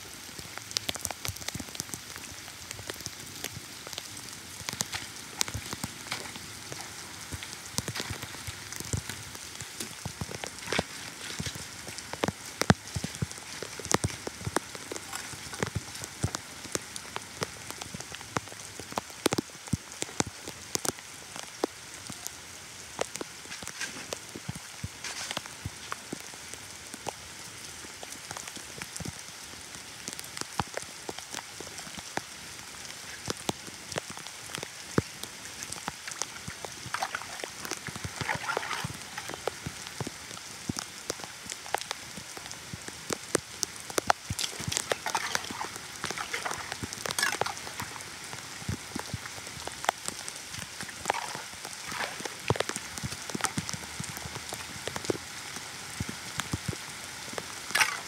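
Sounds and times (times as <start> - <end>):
heavy rain on standing water: 0.0 - 58.0.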